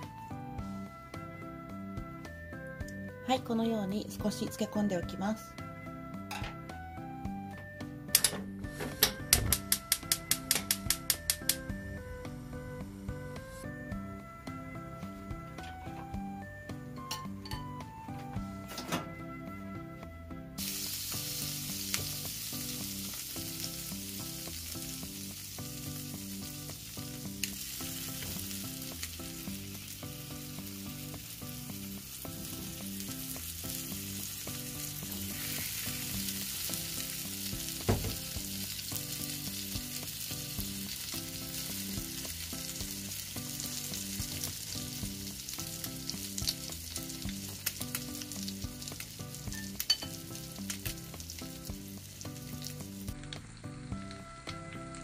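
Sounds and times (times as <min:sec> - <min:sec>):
background music: 0:00.0 - 0:55.0
bread frying: 0:07.4 - 0:16.7, 0:20.6 - 0:55.0
butter sizzling in a skillet: 0:20.6 - 0:55.0.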